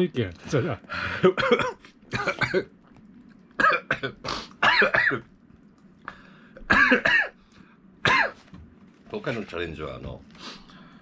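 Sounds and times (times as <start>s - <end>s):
man coughing and clearing throat: 1.1s - 2.7s, 3.6s - 5.3s, 6.6s - 7.4s, 8.0s - 8.5s.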